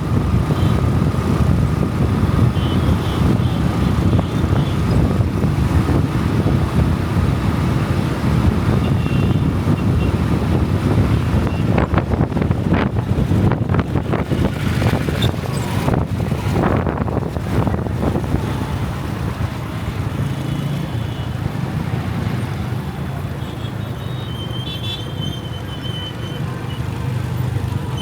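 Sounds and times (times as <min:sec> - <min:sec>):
wind buffeting microphone: 0:00.0 - 0:20.2
motorcycle engine: 0:00.1 - 0:23.1.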